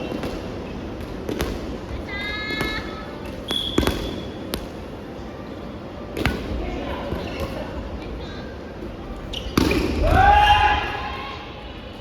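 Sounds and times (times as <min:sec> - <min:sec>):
sneakers squeaking on floor: 0:03.5 - 0:04.5, 0:09.3 - 0:10.0
volleyball being hit: 0:09.6 - 0:10.3.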